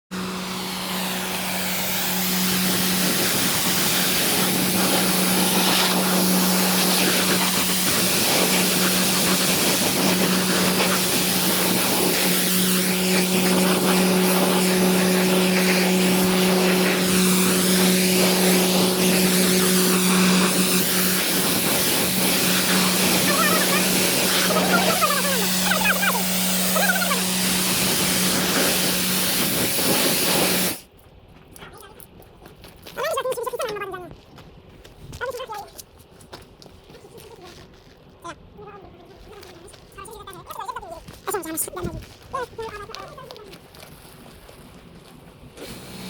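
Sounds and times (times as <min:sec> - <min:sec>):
pressure washer pump hum: 0:00.1 - 0:31.0, 0:45.4 - 0:46.0
water jet hissing: 0:00.2 - 0:30.9, 0:45.6 - 0:46.0.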